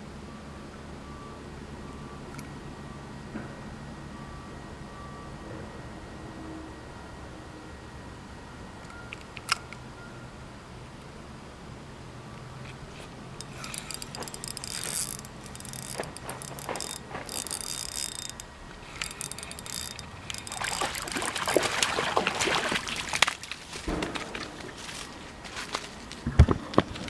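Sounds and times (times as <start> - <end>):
fishing reel ratcheting: 13.4 - 21.8.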